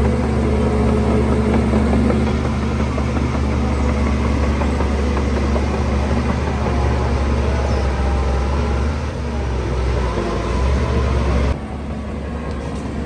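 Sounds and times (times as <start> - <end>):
heavy diesel engine running: 0.0 - 13.0.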